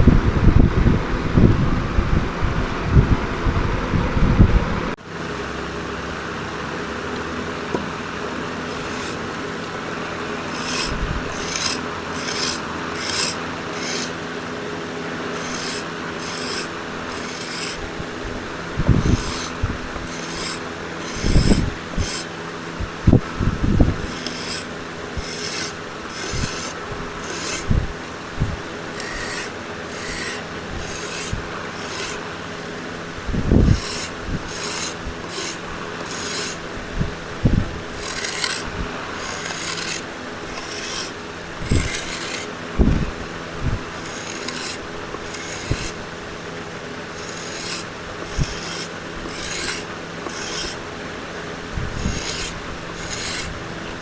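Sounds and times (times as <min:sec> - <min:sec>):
wood scraping by hand: 0:07.3 - 0:18.0, 0:18.8 - 0:22.3, 0:23.1 - 0:36.8, 0:37.4 - 0:46.1, 0:47.0 - 0:50.9, 0:51.9 - 0:54.0.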